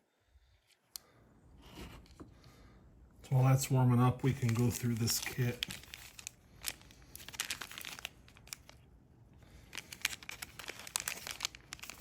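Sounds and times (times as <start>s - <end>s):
plastic packaging crinkling: 4.2s - 12.0s.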